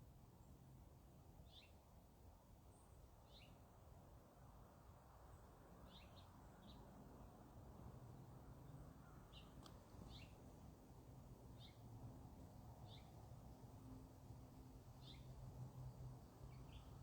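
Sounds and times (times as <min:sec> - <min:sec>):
small bird chirping: 0:09.3 - 0:10.4.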